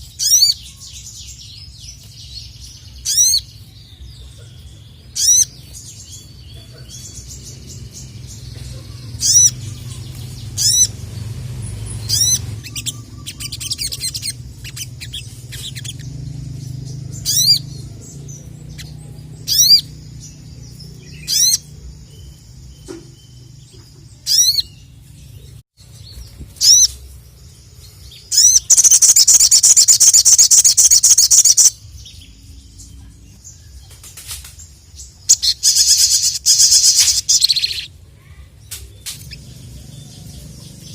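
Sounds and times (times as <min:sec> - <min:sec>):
songbird singing: 0:00.0 - 0:40.9
bird chattering run: 0:06.6 - 0:17.9, 0:28.3 - 0:31.7.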